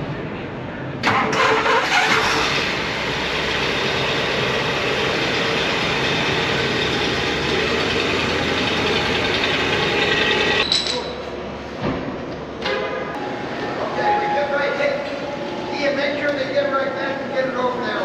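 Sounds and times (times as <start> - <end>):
vehicle engine starting and idling: 1.0 - 10.6.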